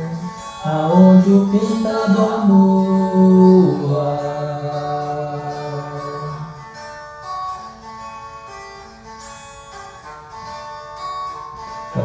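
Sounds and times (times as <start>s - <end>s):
person singing: 0.0s - 6.7s
acoustic guitar plucking melody: 0.0s - 12.0s.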